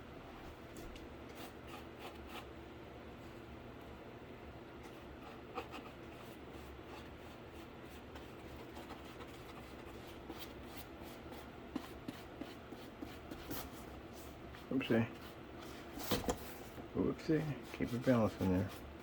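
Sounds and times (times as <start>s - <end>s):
paintbrush rubbing on cardboard: 5.2s - 16.0s, 17.2s - 18.9s.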